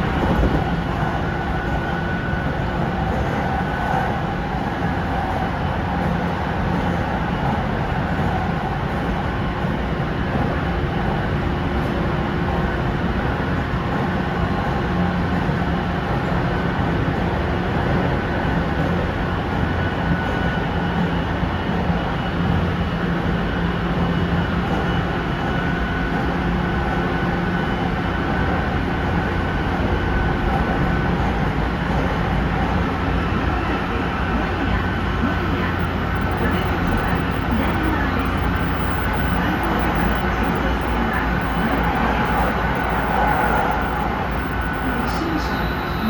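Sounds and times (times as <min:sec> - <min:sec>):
train wheels rumbling on rails: 0:00.0 - 0:46.0
faint hum: 0:34.7 - 0:46.0.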